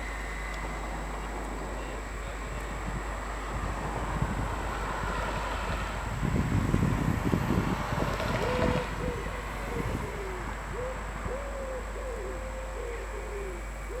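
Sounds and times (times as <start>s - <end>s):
pigeon cooing: 8.2s - 14.0s.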